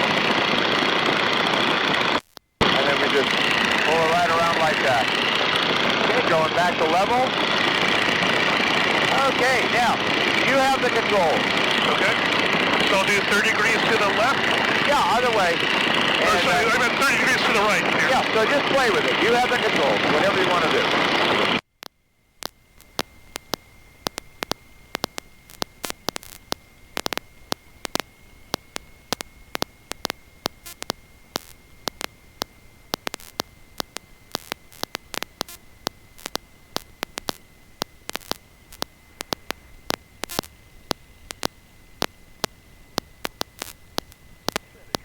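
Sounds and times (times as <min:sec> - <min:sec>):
static clicks and crackles: 0:00.0 - 0:45.0
thin high whine: 0:00.0 - 0:45.0
faint hiss: 0:22.4 - 0:45.0.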